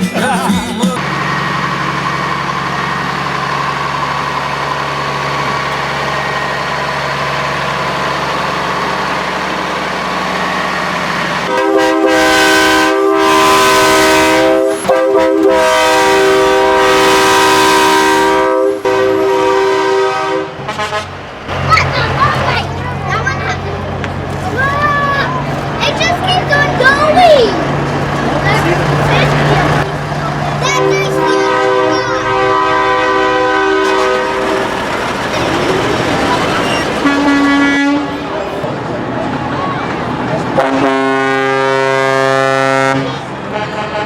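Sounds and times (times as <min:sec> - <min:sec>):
diesel truck engine running: 0:00.0 - 0:44.0
truck air horn chord: 0:11.4 - 0:21.2, 0:30.6 - 0:34.7, 0:37.0 - 0:38.3, 0:40.6 - 0:44.0.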